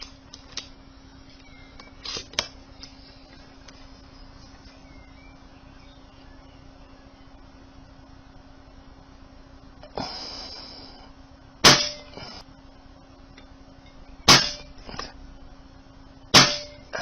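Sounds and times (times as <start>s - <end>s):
air rifle shots: 11.6s - 12.2s, 14.3s - 14.8s, 16.3s - 16.9s.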